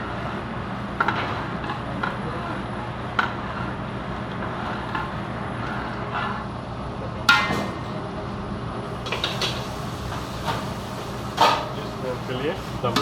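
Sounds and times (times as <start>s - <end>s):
steady background hum: 0.0s - 13.0s
metal cookware clinking: 11.4s - 11.8s.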